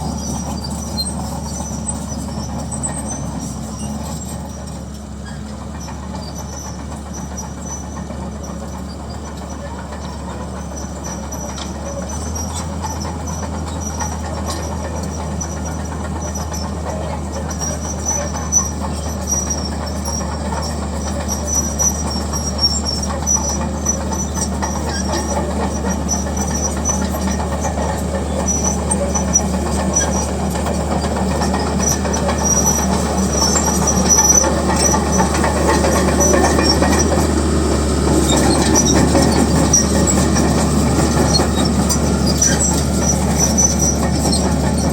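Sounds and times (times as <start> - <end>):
bulldozer diesel engine running: 0.0 - 44.9
steel crawler tracks clanking: 0.0 - 44.9
high squeaks: 17.6 - 44.9.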